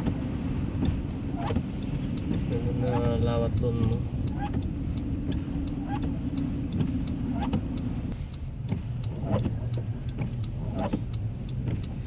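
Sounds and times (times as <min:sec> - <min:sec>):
car engine and road hum: 0:00.0 - 0:12.0.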